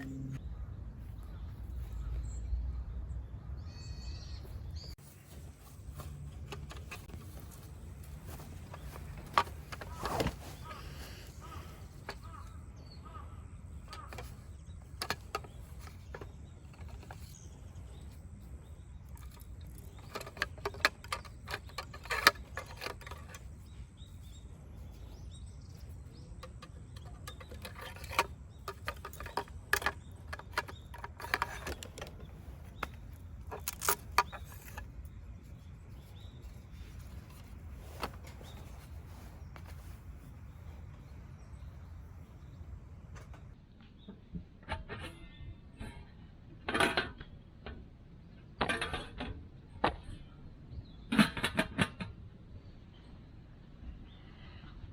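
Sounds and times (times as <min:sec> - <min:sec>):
clicks clinks and knocks: 0:19.0 - 0:23.8, 0:25.8 - 0:39.0.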